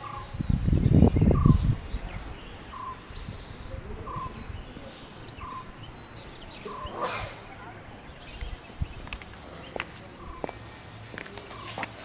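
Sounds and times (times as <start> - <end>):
higher bird chirps: 0.0 - 11.8.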